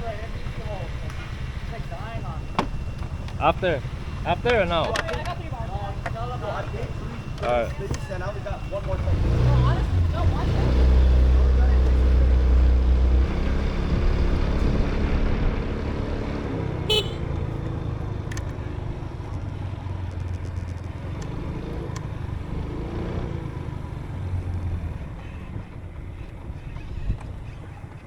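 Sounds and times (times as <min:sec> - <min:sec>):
motorbike engine running: 0:00.0 - 0:28.0
short horn beep: 0:16.9 - 0:17.4.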